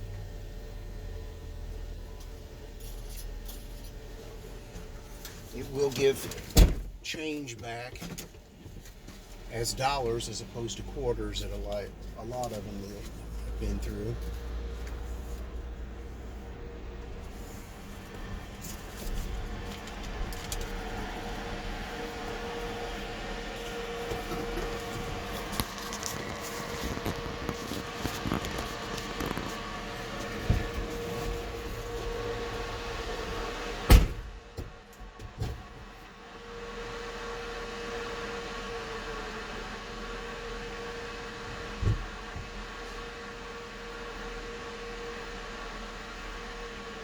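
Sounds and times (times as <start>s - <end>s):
mechanical whirring hum: 0.0s - 47.0s
vehicle engine idling: 7.1s - 35.2s
sharp thump: 33.9s - 34.7s.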